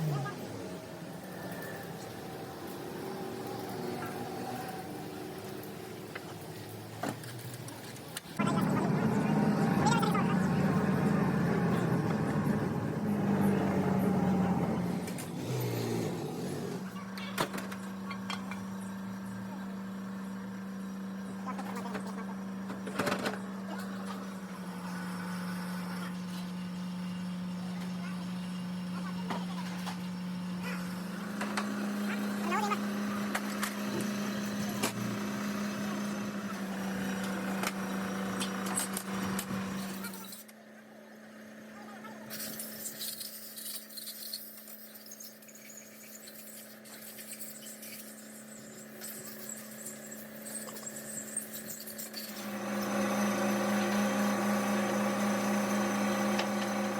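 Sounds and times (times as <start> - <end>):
engine humming: 0.0 - 40.5.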